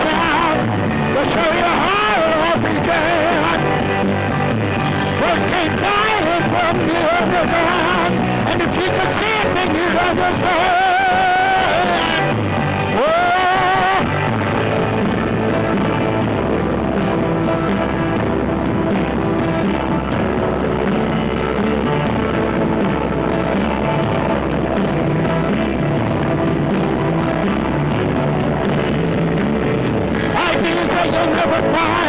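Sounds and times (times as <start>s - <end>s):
rock band playing: 0.0s - 32.0s.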